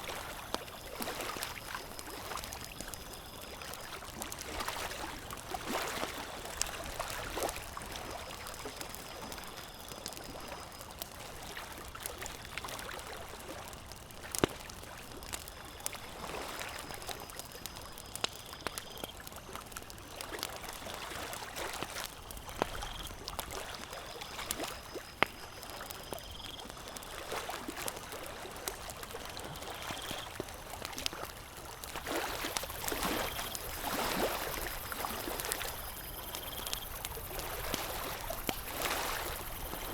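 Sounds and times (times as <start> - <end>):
campfire crackling and popping: 0.0 - 39.9
lake water lapping: 0.1 - 9.3, 26.7 - 39.9.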